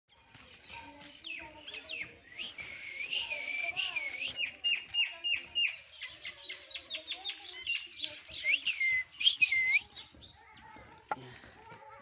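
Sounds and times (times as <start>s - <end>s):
birds chirping and calling: 0.1s - 11.6s.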